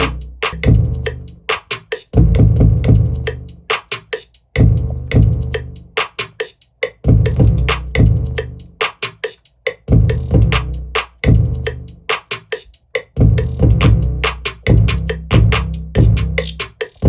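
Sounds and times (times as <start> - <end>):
deep bass notes: 0.0 - 1.5, 2.2 - 3.5, 4.6 - 5.8, 9.9 - 12.0, 13.2 - 16.5
drum machine snare hits: 0.0 - 17.0
rolling hi-hats: 0.0 - 17.0.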